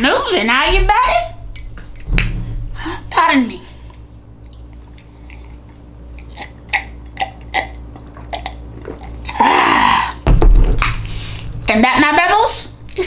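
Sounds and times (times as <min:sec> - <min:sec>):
wet chewing: 0:03.9 - 0:09.8.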